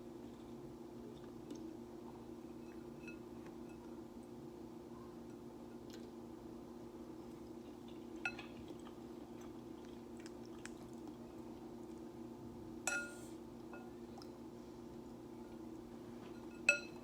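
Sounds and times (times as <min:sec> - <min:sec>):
faint chewing: 0:07.2 - 0:12.1
utensil clinking against bowl: 0:12.9 - 0:13.9, 0:16.2 - 0:17.0.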